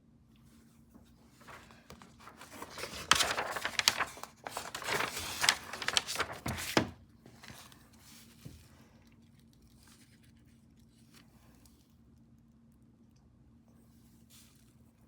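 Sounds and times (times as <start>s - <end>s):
crinkling and rustling: 1.0s - 11.6s.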